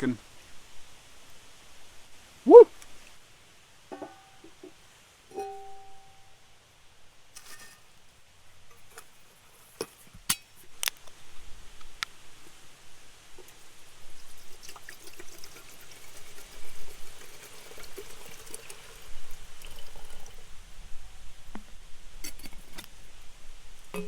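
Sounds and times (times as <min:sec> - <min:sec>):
light clinks: 0:05.3 - 0:06.3
water pouring into kettle: 0:13.4 - 0:20.8.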